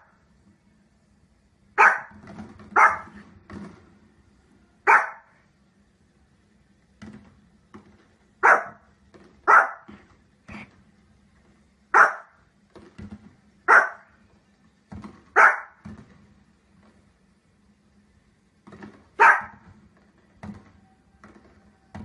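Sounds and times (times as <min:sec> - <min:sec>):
dog barking: 0:01.8 - 0:02.2, 0:02.8 - 0:03.2, 0:04.9 - 0:05.4, 0:08.4 - 0:08.9, 0:09.5 - 0:10.0, 0:11.9 - 0:12.4, 0:13.7 - 0:14.2, 0:15.4 - 0:15.8, 0:19.2 - 0:19.6.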